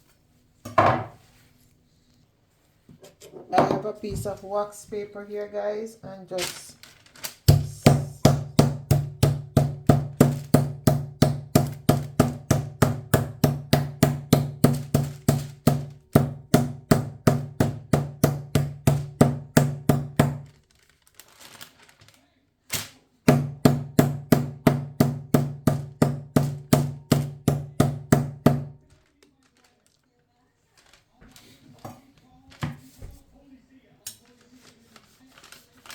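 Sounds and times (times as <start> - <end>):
meat being pounded thuds: 7.5 - 20.5, 23.3 - 28.8.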